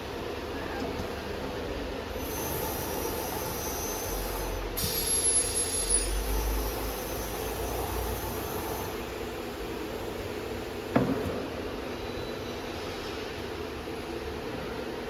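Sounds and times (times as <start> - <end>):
machine mechanical hum: 0.0 - 15.0.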